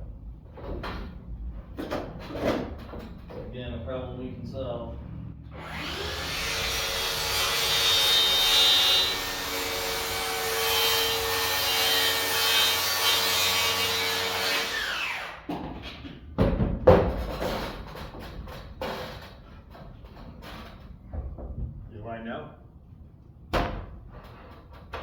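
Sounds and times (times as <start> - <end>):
power saw cutting wood: 5.5 - 15.5.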